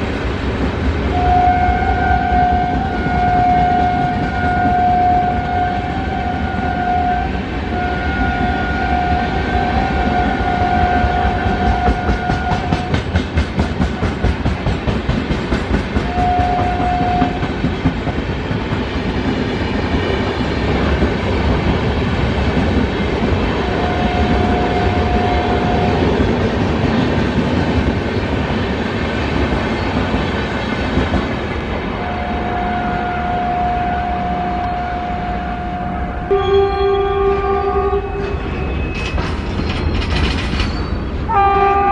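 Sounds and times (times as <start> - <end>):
train horn blasts: 1.1 - 13.0, 16.0 - 17.5, 23.6 - 26.1, 31.9 - 38.6, 41.3 - 41.9
train wheels clacking: 9.0 - 31.6, 38.0 - 41.2.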